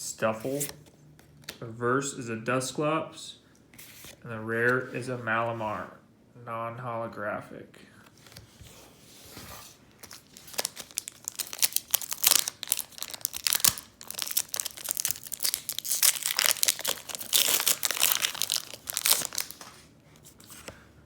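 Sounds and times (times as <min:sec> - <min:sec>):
foil wrapper tearing and crinkling: 0:10.0 - 0:19.7.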